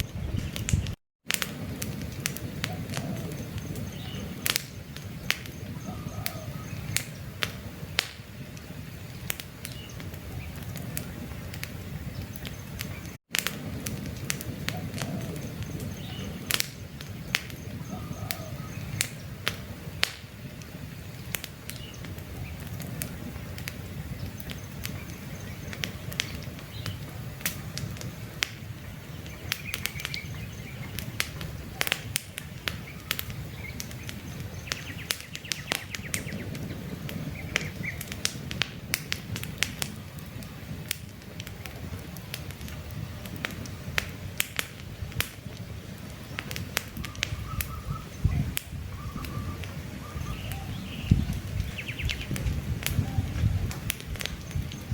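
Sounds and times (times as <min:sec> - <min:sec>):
campfire crackling and popping: 0:00.0 - 0:54.9
faint bird chirps: 0:02.7 - 0:07.3, 0:14.7 - 0:19.3, 0:47.0 - 0:53.7.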